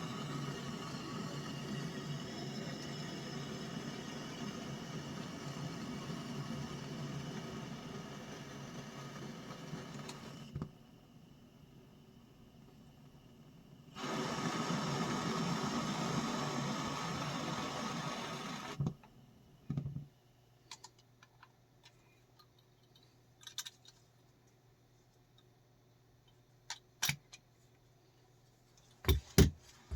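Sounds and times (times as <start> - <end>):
gas burner flame hissing: 0.0 - 18.9.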